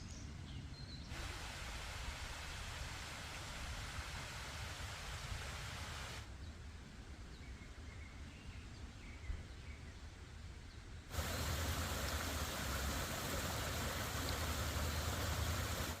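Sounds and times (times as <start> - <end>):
steady rushing hiss: 1.1 - 6.3, 11.1 - 16.0.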